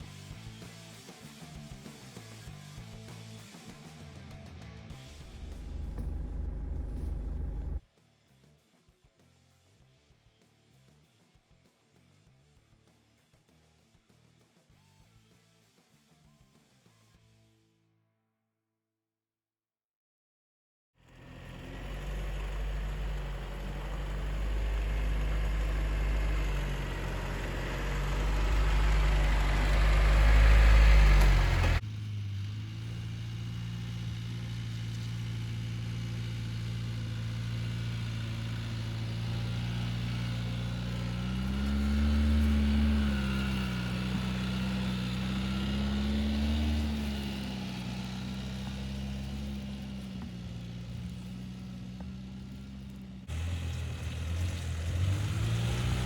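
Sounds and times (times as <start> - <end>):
pickup engine running: 4.4 - 7.8, 21.1 - 56.0.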